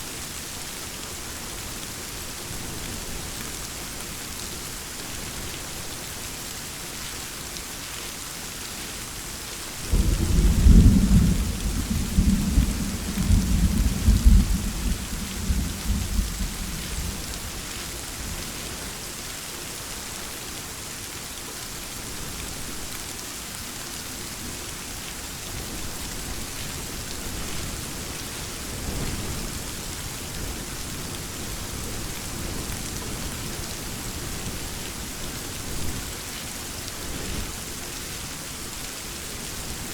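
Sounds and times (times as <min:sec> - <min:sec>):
heavy rain falling: 0:00.0 - 0:39.9
thunder: 0:09.9 - 0:17.4.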